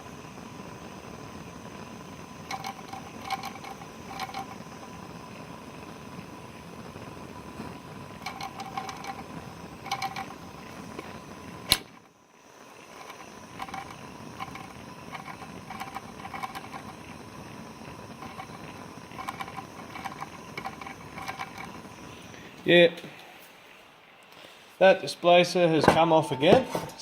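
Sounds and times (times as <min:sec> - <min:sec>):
model engine clicking and rattling: 0:02.5 - 0:04.6, 0:08.2 - 0:10.4, 0:13.0 - 0:17.0, 0:18.2 - 0:21.8.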